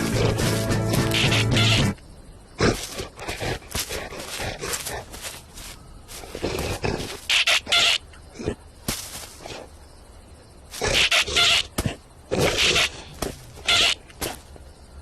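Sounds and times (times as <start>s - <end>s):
cartoon animal squawks: 0.0s - 2.0s, 7.3s - 8.0s, 10.8s - 11.7s, 12.5s - 13.0s, 13.6s - 14.0s.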